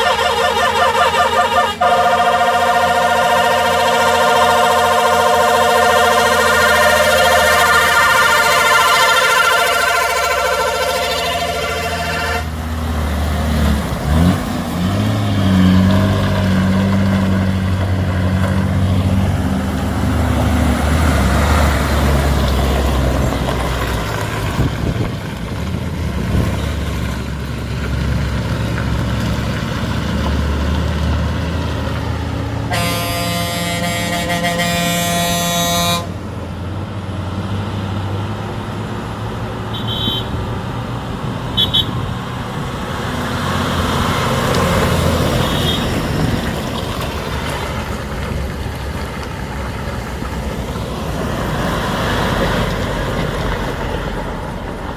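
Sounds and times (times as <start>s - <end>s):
truck horn blast: 0.0s - 12.7s, 32.6s - 36.2s, 39.7s - 40.6s, 41.5s - 42.1s, 44.4s - 46.3s
truck engine running: 0.0s - 54.9s.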